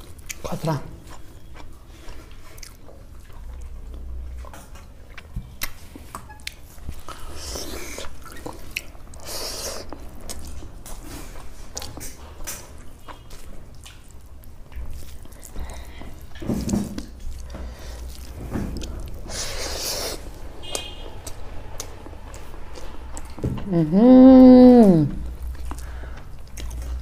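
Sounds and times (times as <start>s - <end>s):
person chewing: 0.0s - 27.0s.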